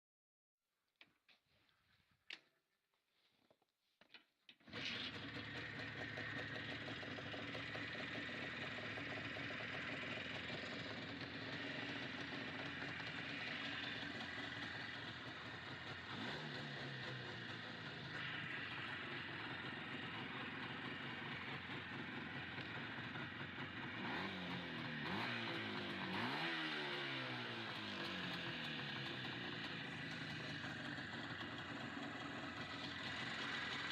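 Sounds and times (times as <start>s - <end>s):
motorcycle engine idling: 4.7s - 33.9s.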